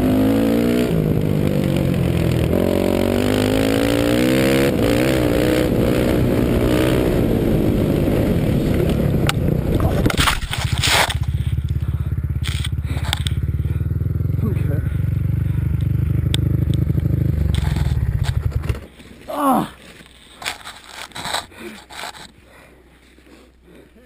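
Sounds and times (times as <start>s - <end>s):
dirt bike engine revving: 0.0s - 18.9s
loud scraping noise: 17.4s - 18.6s, 20.4s - 22.3s.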